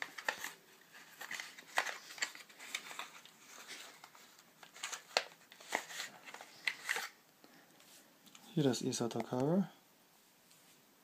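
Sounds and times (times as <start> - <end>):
packaging crinkling: 0.0 - 7.2.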